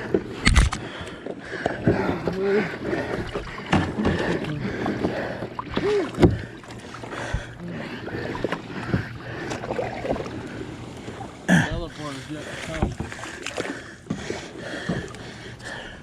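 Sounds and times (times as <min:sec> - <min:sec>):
paddle splashes: 0:00.0 - 0:16.0
knocks against kayak hull: 0:12.7 - 0:13.2.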